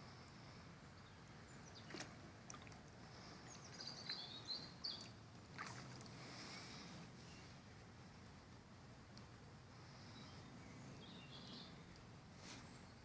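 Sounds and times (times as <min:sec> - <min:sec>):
faint water drips: 0:01.5 - 0:06.6
small bird chirping: 0:03.5 - 0:05.1.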